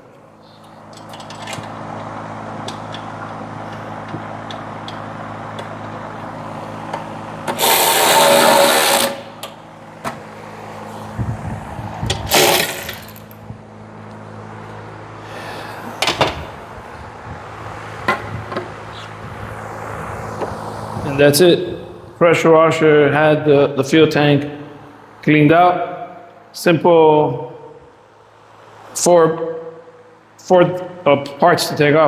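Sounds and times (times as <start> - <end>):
low mechanical hum: 0.0 - 32.0
loud bursts of noise: 7.2 - 9.8, 11.1 - 14.0.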